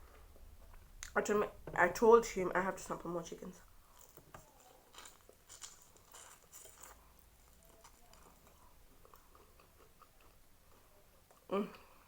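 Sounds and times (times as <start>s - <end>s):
chewing and crunching food: 3.6s - 12.0s.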